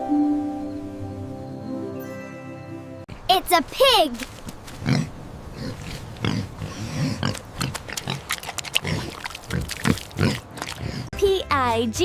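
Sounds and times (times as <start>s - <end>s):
pig grunting: 4.8s - 11.1s.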